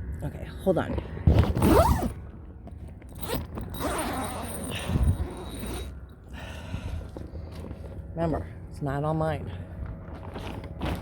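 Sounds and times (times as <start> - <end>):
tent zipper being pulled: 1.4 - 2.2, 3.2 - 5.9.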